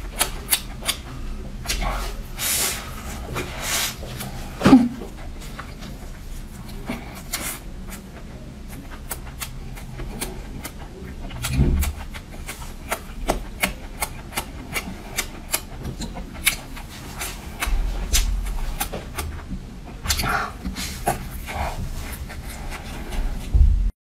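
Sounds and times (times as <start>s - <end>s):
wet chewing and mouth clicks: 0.0s - 2.4s, 5.1s - 23.5s
dull low thump: 23.5s - 24.0s.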